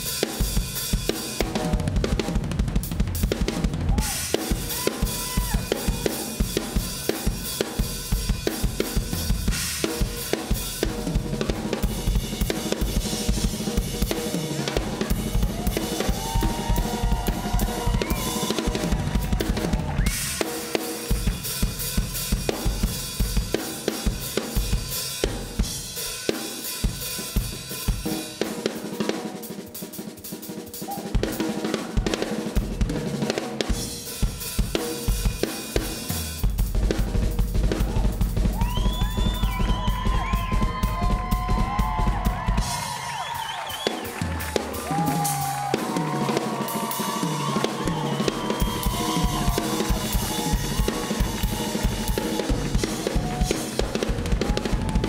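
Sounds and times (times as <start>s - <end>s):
fast drum kit playing: 0.0s - 55.0s.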